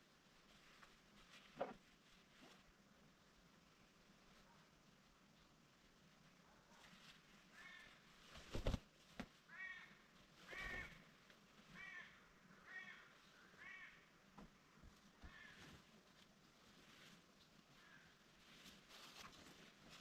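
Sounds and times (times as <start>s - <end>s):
crow cawing: 7.6s - 7.9s, 9.5s - 11.0s, 11.8s - 14.1s, 15.2s - 15.7s.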